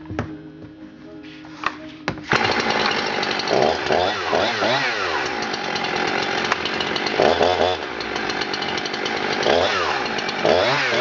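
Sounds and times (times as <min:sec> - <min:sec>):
chainsaw throttle blips: 0:02.3 - 0:11.0.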